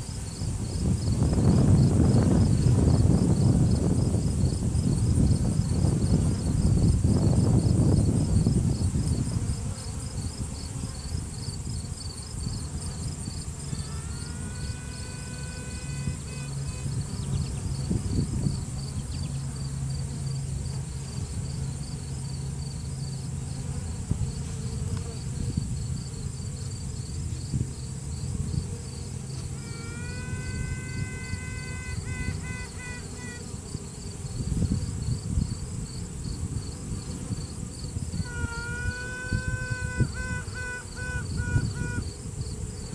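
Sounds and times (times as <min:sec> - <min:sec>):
honeybee colony humming: 0:00.0 - 0:42.9
queen bee piping: 0:00.0 - 0:42.9.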